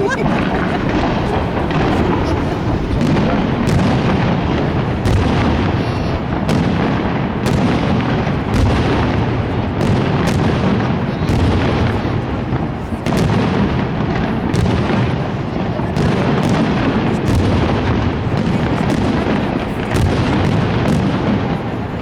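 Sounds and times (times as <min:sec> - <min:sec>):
fireworks rumbling bursts: 0:00.0 - 0:22.0
sharp firework reports: 0:00.0 - 0:22.0.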